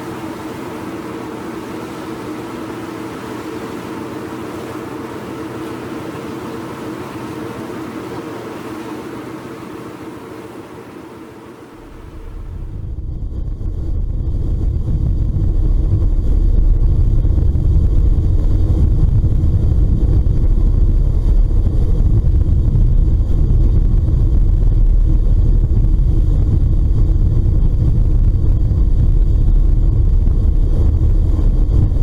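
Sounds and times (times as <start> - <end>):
ship engine rumbling: 0.0 - 32.0
wind on microphone: 11.8 - 32.0.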